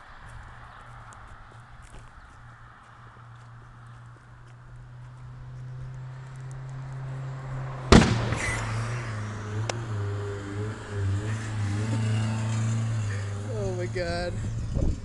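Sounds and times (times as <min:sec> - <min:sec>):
car engine running: 0:03.4 - 0:14.6
faint engine pop: 0:07.9 - 0:08.7
engine backfire bang: 0:07.9 - 0:09.3.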